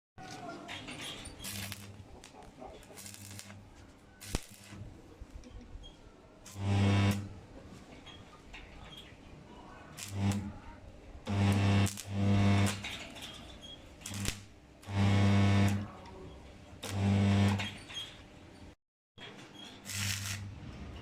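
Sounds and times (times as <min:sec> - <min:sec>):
arc welder buzzing and crackling: 0:01.2 - 0:05.0, 0:06.4 - 0:07.5, 0:09.9 - 0:18.2, 0:19.8 - 0:20.7.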